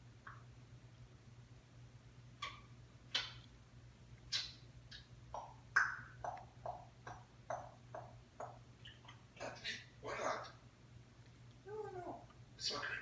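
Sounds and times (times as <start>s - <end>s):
parrot chirping and squawking: 2.4s - 3.4s, 4.3s - 10.6s.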